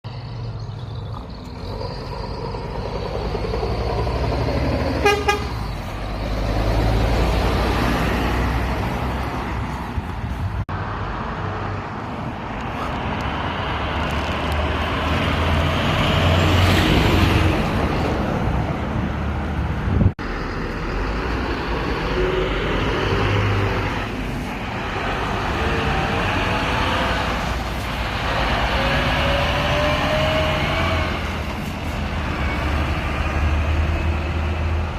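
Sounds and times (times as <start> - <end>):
trucks driving past: 0.1 - 34.9
truck horn blast: 5.0 - 5.7.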